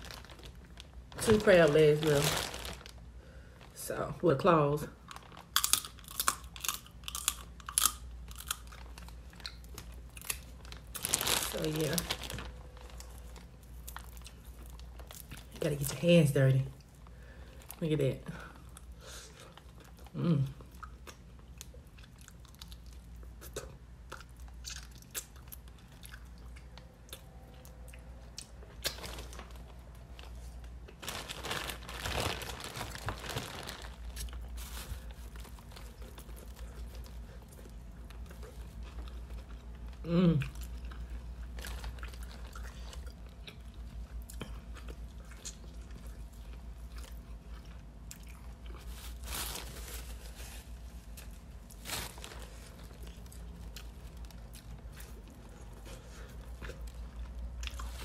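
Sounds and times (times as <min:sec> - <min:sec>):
person chewing seafood: 0:05.1 - 0:11.3, 0:20.7 - 0:29.4, 0:35.2 - 0:49.0
person humming mmm: 0:40.0 - 0:40.6.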